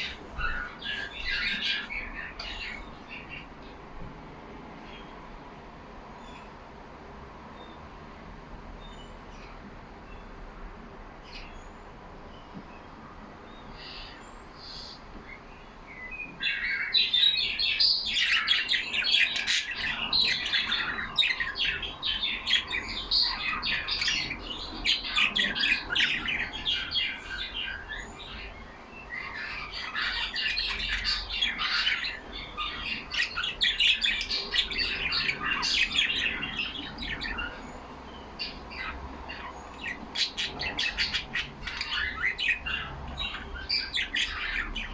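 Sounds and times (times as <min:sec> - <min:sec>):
budgerigars chattering: 0:00.0 - 0:03.4, 0:16.5 - 0:44.9.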